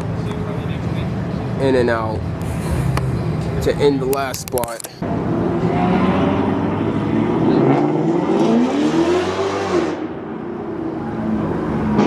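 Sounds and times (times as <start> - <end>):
car engine accelerating: 5.0 - 12.0.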